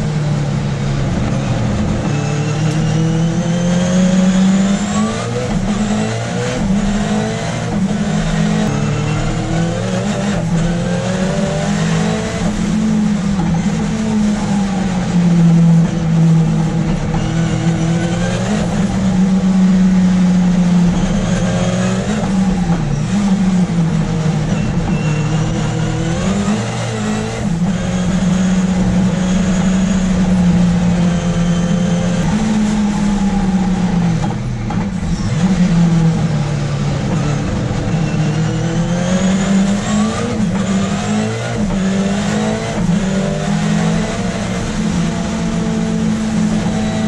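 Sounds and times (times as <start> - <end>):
race car engine at high revs: 0.0 - 47.0.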